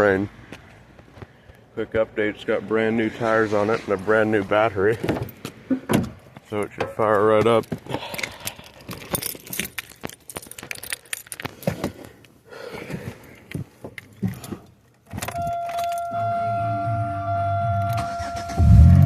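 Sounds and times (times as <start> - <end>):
car keys jangling: 7.5 - 12.4, 13.3 - 16.2
electronic warning tone: 15.4 - 19.0.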